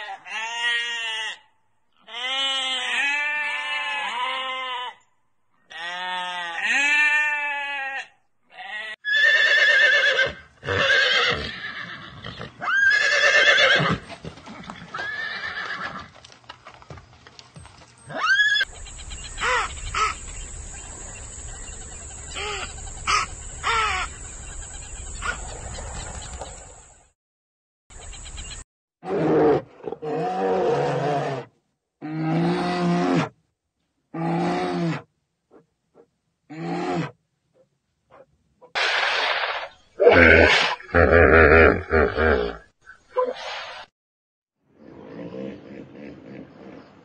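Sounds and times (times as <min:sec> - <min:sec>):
sheep bleating: 0:00.1 - 0:01.4, 0:02.0 - 0:05.0, 0:05.7 - 0:09.0
horse neighing: 0:09.0 - 0:16.1.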